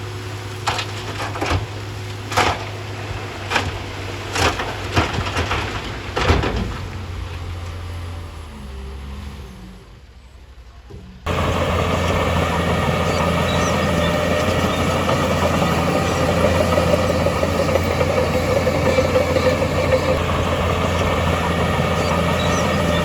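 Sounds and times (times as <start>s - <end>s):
diesel engine running: 11.3s - 23.0s.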